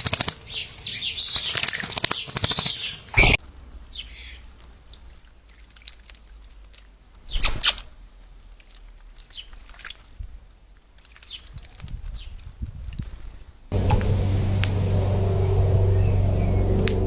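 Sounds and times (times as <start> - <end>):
small birds chirping: 0.0 - 10.0, 11.0 - 12.4, 13.7 - 17.0.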